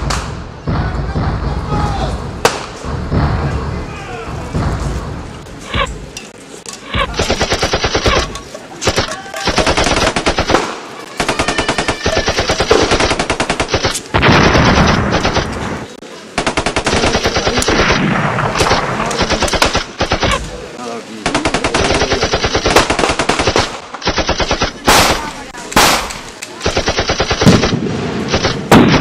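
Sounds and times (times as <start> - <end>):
single gunshots: 2.4 - 3.8, 12.2 - 20.4, 21.3 - 29.0
machine guns firing bursts: 7.0 - 15.6, 16.4 - 20.4, 21.2 - 29.0.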